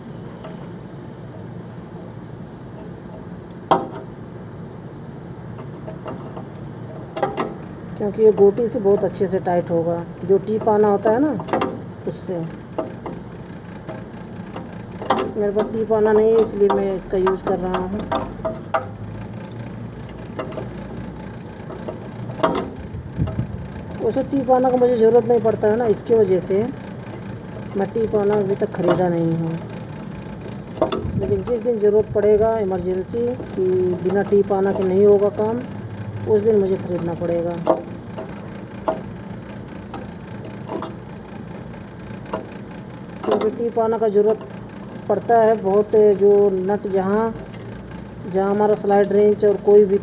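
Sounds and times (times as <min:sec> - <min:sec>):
steady background hum: 0:00.0 - 0:50.0
wrench clicking on nut: 0:05.6 - 0:09.1, 0:10.6 - 0:11.8, 0:12.7 - 0:23.4, 0:26.9 - 0:41.1, 0:42.0 - 0:43.6.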